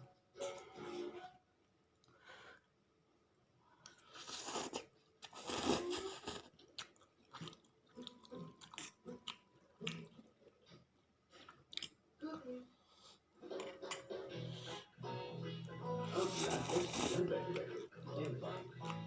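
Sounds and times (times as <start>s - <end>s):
person chewing noodles: 3.8s - 12.0s, 15.5s - 19.0s.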